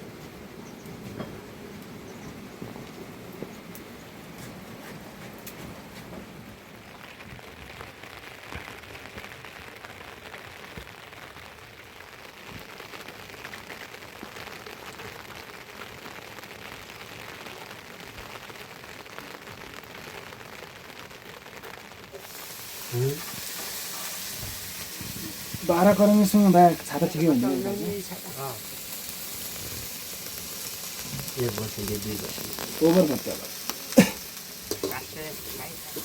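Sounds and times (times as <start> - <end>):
rain pattering: 0.0 - 36.0.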